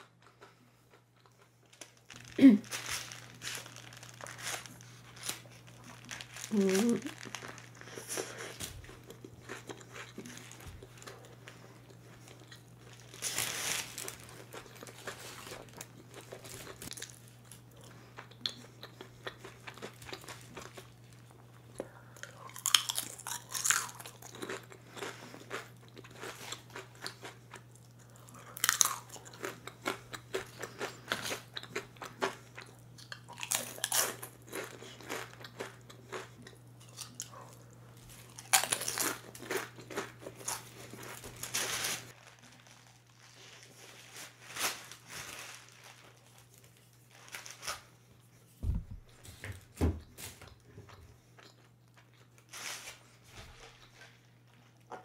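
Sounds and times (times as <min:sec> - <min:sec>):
quiet chewing: 0:00.0 - 0:13.2, 0:14.0 - 0:41.2
crunching chips: 0:00.0 - 0:48.0.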